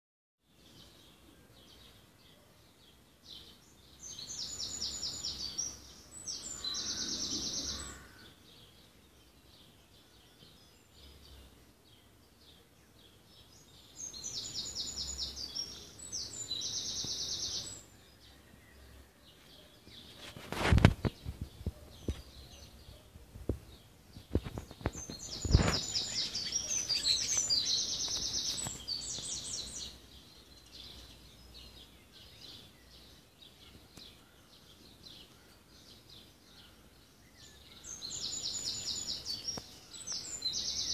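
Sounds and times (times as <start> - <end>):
songbird singing with trill: 0.5 - 20.4, 21.0 - 40.9
faint bird chirps: 9.6 - 40.9.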